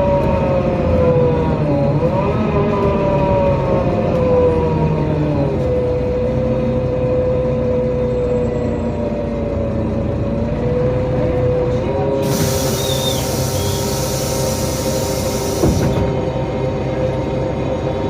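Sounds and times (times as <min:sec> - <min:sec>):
bus drivetrain whine: 0:00.0 - 0:18.0
compressed-air hiss: 0:12.2 - 0:16.0
thump: 0:15.6 - 0:16.2.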